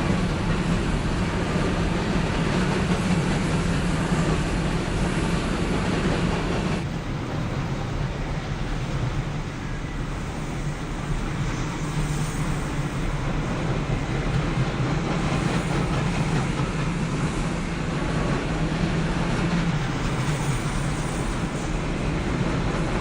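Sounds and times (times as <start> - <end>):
freight train rolling past: 0.0 - 23.0.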